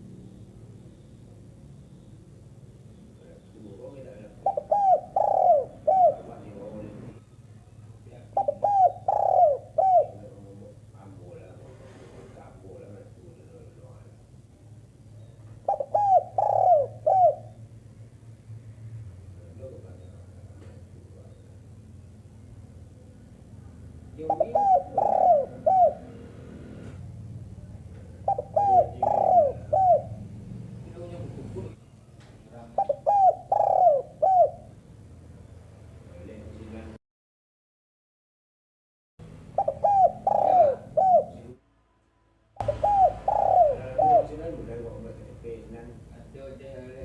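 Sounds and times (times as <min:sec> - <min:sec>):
dove cooing: 0:03.8 - 0:07.2, 0:08.2 - 0:11.2, 0:15.6 - 0:17.7, 0:24.2 - 0:27.0, 0:28.0 - 0:30.8, 0:32.7 - 0:34.8, 0:39.5 - 0:41.6, 0:42.6 - 0:45.1.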